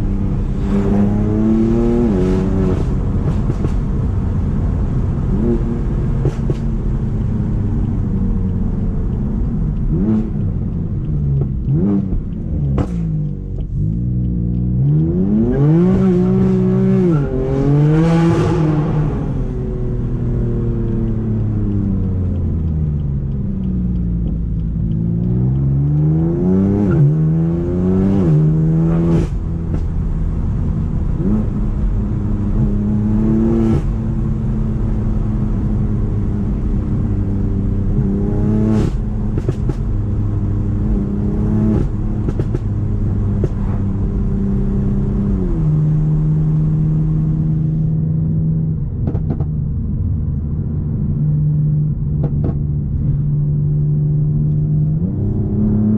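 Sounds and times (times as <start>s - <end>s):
car engine revving through gears: 0.0s - 55.9s.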